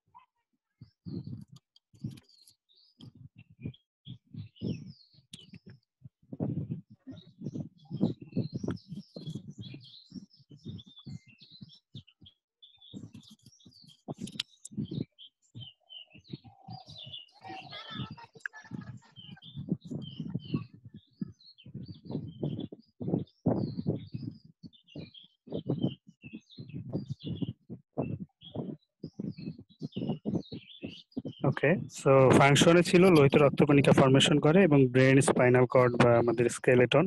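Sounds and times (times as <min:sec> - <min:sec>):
small birds chirping: 0:00.1 - 0:37.0
low muffled sounds: 0:26.6 - 0:37.0.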